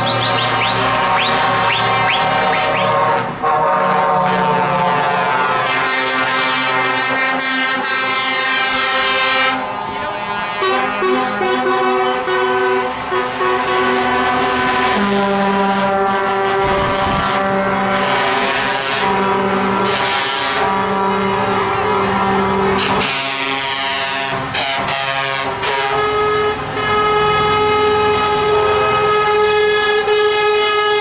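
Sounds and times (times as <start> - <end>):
truck air horns blasting: 0.0 - 31.0
truck engines passing: 0.0 - 31.0.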